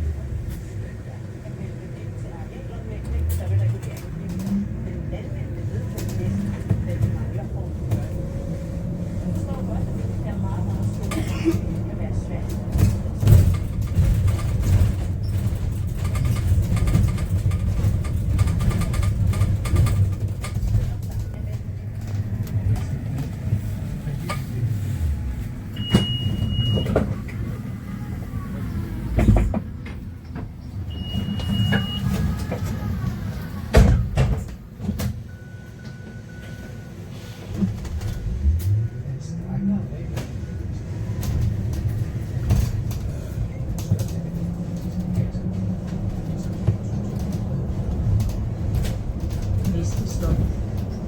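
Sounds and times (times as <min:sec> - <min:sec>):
bus road rumble: 0:00.0 - 0:51.0
knocks and rattles: 0:10.8 - 0:23.6
short high beeps: 0:31.0 - 0:32.2.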